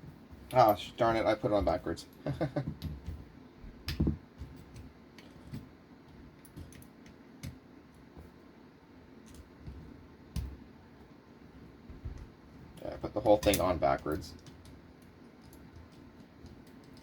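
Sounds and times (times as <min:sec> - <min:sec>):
small clicks and taps of parts: 0:03.8 - 0:07.6, 0:09.2 - 0:10.6, 0:12.0 - 0:17.0.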